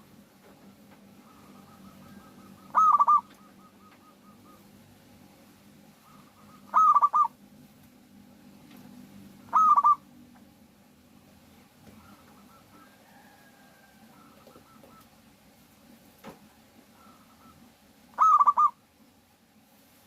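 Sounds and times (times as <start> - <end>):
dove cooing: 0.0 - 5.0, 5.9 - 7.4, 9.4 - 10.2, 11.9 - 15.4, 16.9 - 18.8
soft repeated bird notes: 0.5 - 5.0, 5.9 - 7.4, 9.4 - 10.1, 11.9 - 13.0, 14.0 - 15.3, 16.9 - 18.8.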